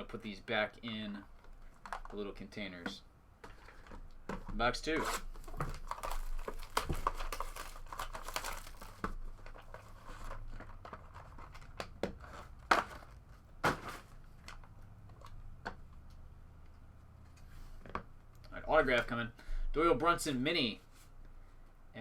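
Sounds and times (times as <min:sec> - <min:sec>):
plastic wrapping crinkling and tearing: 0:05.0 - 0:14.1.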